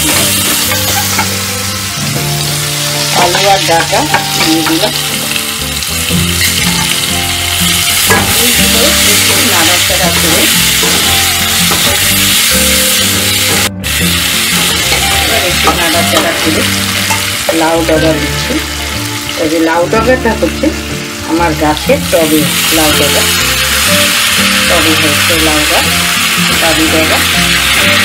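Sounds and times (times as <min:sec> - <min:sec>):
vegetables frying in oil: 0:00.0 - 0:28.0.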